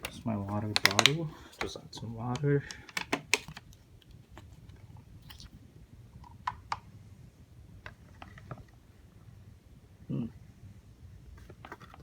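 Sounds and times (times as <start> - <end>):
plastic containers clicking: 0.0 - 3.7.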